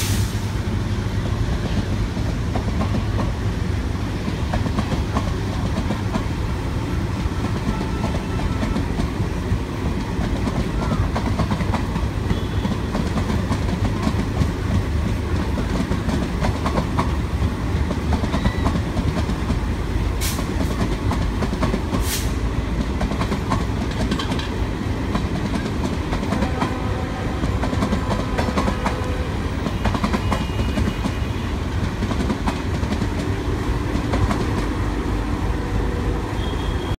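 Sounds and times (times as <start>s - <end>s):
train coaches rumbling past: 0.0s - 37.0s
wheels clattering over rail joints: 22.8s - 26.8s.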